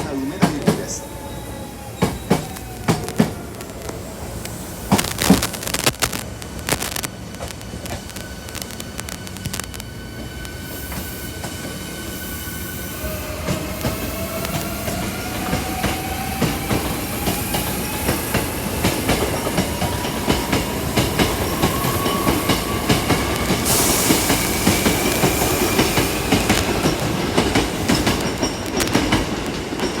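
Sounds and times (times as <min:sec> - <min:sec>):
loud hiss: 0:02.4 - 0:15.5, 0:21.2 - 0:28.0.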